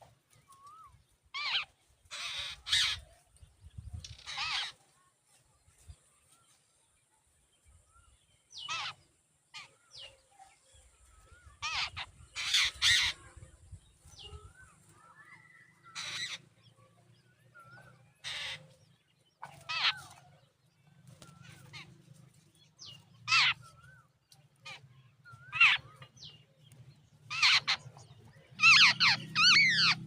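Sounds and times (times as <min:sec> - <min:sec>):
birds giving harsh calls: 0:00.0 - 0:03.2, 0:03.9 - 0:04.8, 0:08.5 - 0:10.1, 0:11.0 - 0:13.5, 0:14.1 - 0:16.6, 0:17.5 - 0:20.4, 0:21.1 - 0:30.0.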